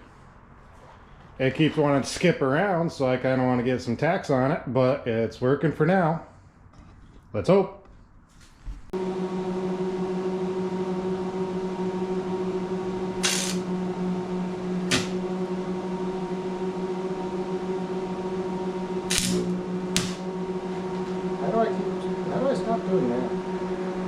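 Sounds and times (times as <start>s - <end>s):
electric welder humming: 9.0s - 24.0s
welding crackling bursts: 13.2s - 13.7s, 14.9s - 15.2s, 19.0s - 20.2s.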